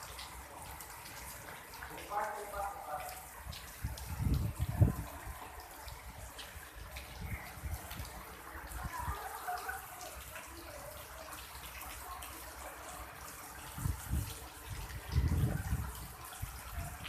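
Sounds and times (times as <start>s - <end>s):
rain falling: 0.0s - 17.0s
small drips ticking: 0.0s - 17.0s
water trickling: 0.0s - 17.0s.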